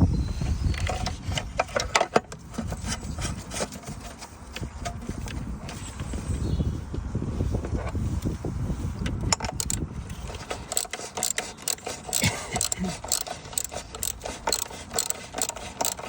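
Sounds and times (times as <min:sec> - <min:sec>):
metal tools clinking: 0:09.3 - 0:16.0.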